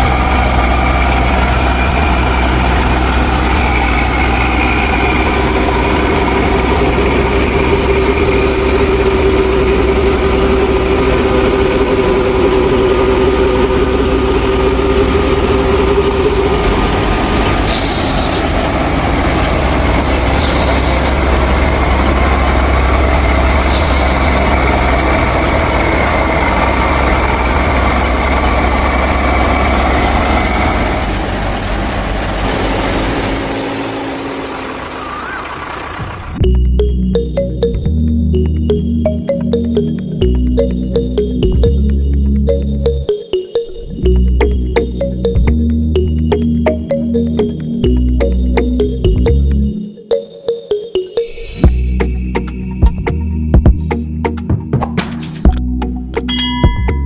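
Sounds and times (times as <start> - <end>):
engine droning hum: 0.0 - 43.2, 43.8 - 49.8, 55.4 - 57.0.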